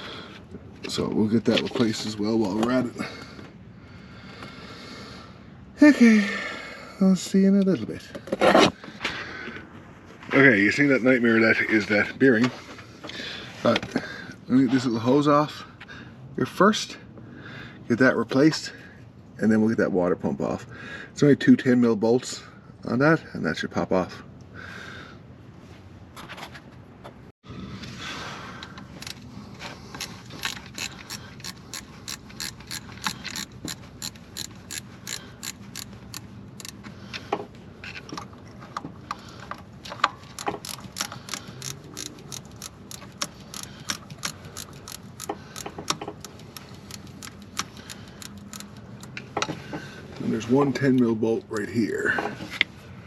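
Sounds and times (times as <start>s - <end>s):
ratchet wrench clicking: 30.0s - 36.8s, 40.2s - 49.2s.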